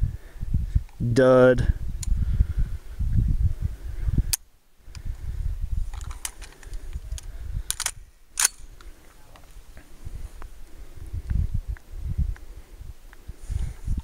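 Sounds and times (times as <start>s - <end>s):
steady low rumble: 0.0s - 14.0s
sharp cracks: 7.6s - 8.9s.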